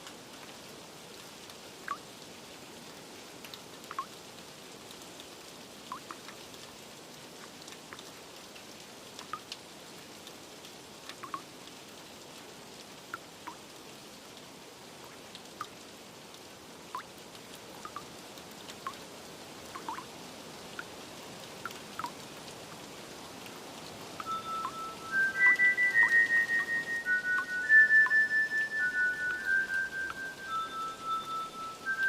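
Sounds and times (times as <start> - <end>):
steady rain: 0.0 - 32.0
water drops plinking: 3.9 - 4.1, 5.9 - 6.2, 11.2 - 11.4, 17.8 - 18.1, 19.8 - 20.1, 21.6 - 22.2, 24.2 - 32.0.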